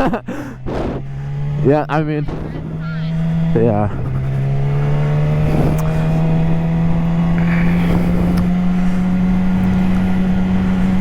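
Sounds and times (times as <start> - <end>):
motorcycle engine accelerating: 0.0 - 11.0
wind rushing: 2.2 - 8.5.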